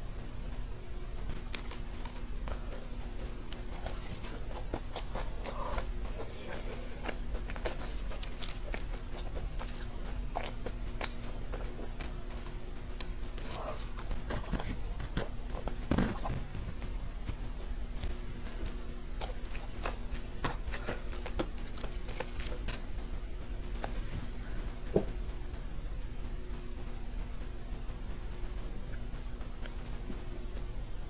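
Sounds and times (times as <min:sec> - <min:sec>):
faint steady hum: 0:00.0 - 0:31.0
chewing crunchy cookie: 0:01.2 - 0:24.5.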